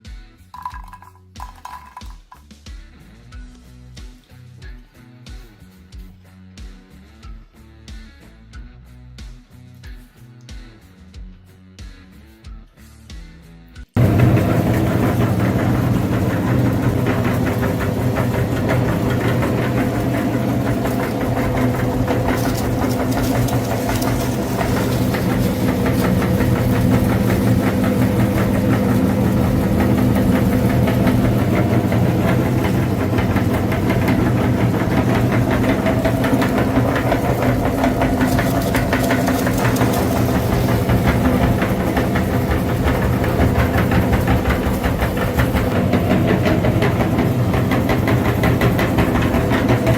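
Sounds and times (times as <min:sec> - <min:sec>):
tractor engine knocking: 0:14.0 - 0:49.9.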